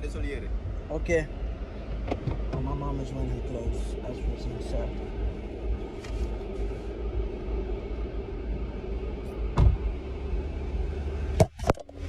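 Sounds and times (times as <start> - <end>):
car engine rumble inside car: 0.0 - 12.0
car door clicks opening: 2.0 - 2.7
thump: 9.5 - 9.9.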